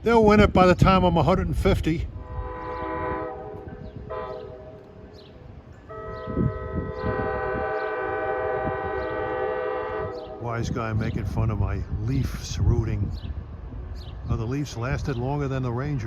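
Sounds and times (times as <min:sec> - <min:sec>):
train air horn blasts: 0:02.1 - 0:10.4.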